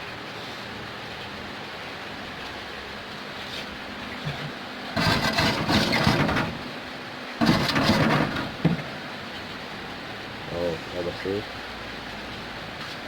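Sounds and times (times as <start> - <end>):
hand scrubbing metal: 5.0 - 6.6.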